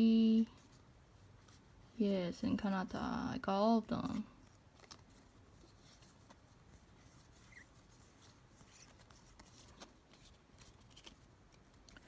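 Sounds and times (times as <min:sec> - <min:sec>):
faint rustling of cards: 0:00.2 - 0:12.0.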